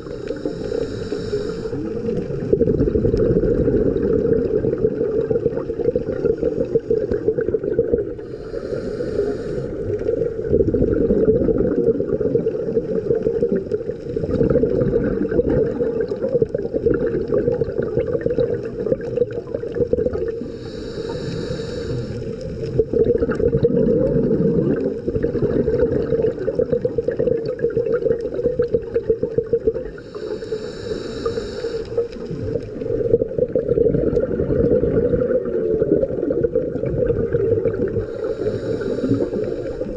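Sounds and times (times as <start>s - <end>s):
diver breathing through regulator: 0.0s - 2.3s, 8.1s - 10.2s, 20.4s - 22.8s, 29.8s - 32.9s, 37.9s - 39.9s
low rumble of water and bubbles: 0.0s - 39.9s.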